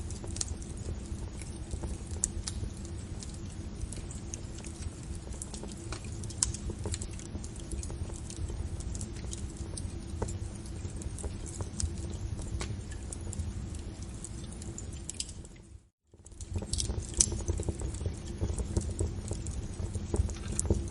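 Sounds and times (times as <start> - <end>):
low rumble of flames: 0.0 - 20.9
wood fire crackling and popping: 0.0 - 20.9.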